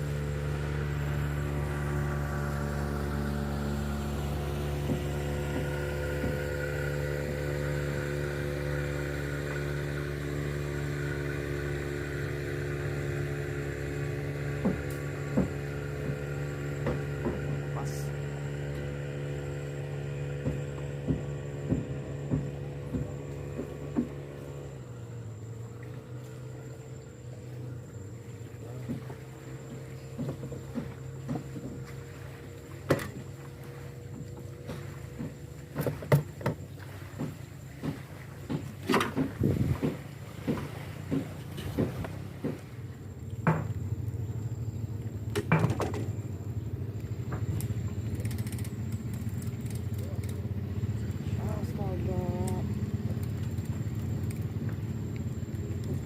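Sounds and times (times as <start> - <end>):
small boat motor running: 0.0 - 56.0
sharp knocks: 14.5 - 17.6, 20.4 - 24.2
dull thumps: 34.0 - 42.8.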